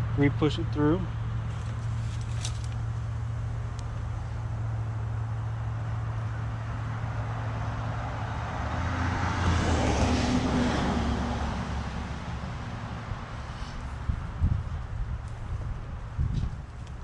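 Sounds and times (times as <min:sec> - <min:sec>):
steady low hum: 0:00.0 - 0:08.4
vehicle passing: 0:00.7 - 0:17.0.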